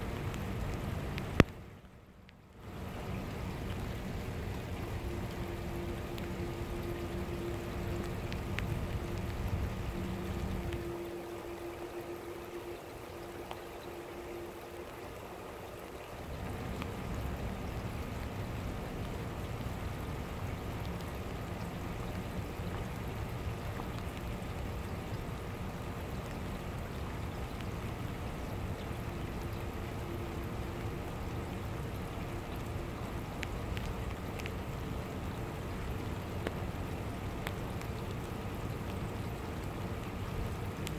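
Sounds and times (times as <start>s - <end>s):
rain drop ticks: 0.0s - 40.9s
steady rain hiss: 0.0s - 40.9s
low rumble: 2.8s - 15.0s.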